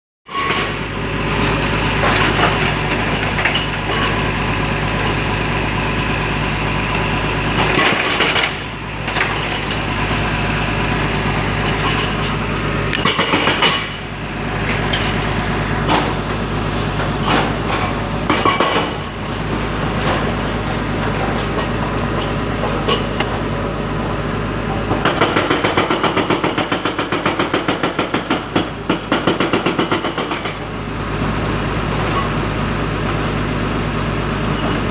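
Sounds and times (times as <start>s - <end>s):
diesel engine running: 0.3s - 34.9s
metal clanks: 11.6s - 23.5s.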